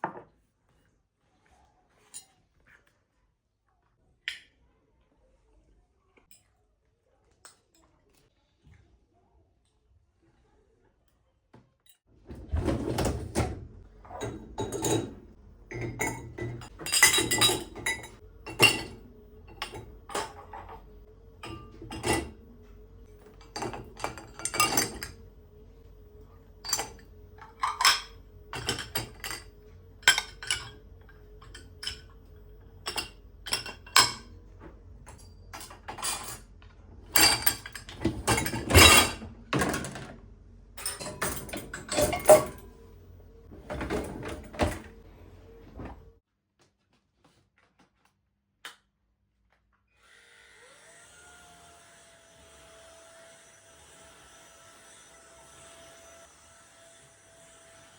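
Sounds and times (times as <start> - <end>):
dishes and utensils clinking: 12.6 - 22.4, 23.2 - 25.2, 26.6 - 34.4, 35.0 - 36.5, 37.1 - 40.1, 40.8 - 42.8.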